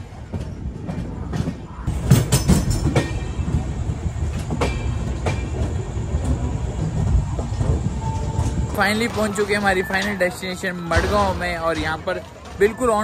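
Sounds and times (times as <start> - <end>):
train rumbling: 0.0 - 13.0
wheel clacks over rail joints: 0.0 - 13.0.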